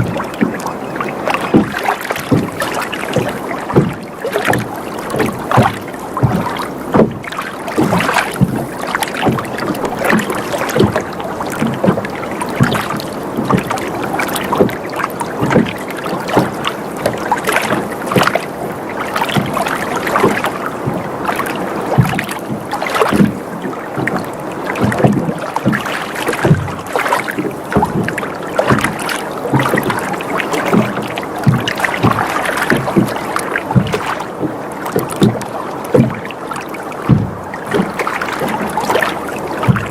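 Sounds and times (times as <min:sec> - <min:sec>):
water lapping against boat hull: 0:00.0 - 0:39.9.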